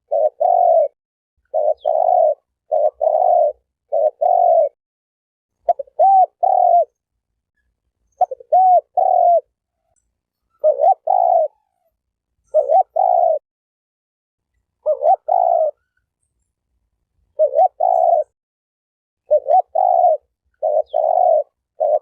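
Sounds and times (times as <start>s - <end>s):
dove cooing: 0.0s - 4.8s, 5.6s - 7.0s, 8.2s - 13.4s, 14.8s - 16.0s, 17.3s - 18.4s, 19.2s - 22.0s.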